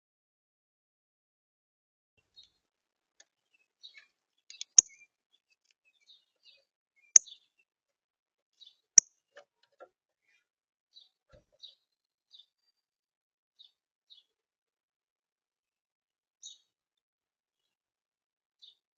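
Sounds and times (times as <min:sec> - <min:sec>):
small birds chirping: 0:02.2 - 0:07.8, 0:08.5 - 0:12.8, 0:13.6 - 0:14.4, 0:16.4 - 0:16.7, 0:18.6 - 0:18.8.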